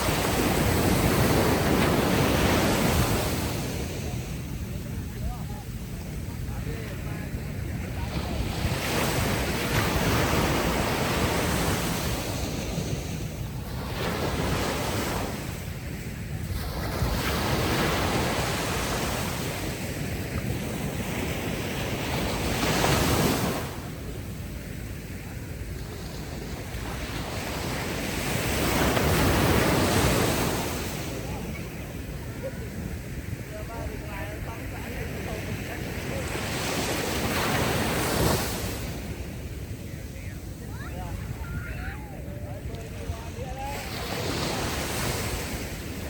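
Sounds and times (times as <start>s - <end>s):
ocean waves breaking on beach: 0.0s - 46.0s.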